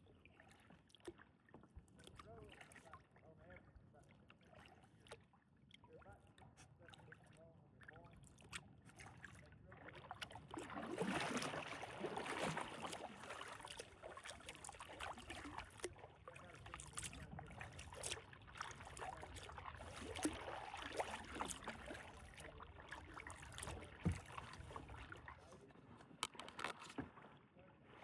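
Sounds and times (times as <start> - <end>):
small water splashes and drips: 0.0 - 27.4
kayak paddle strokes through water: 0.0 - 28.0.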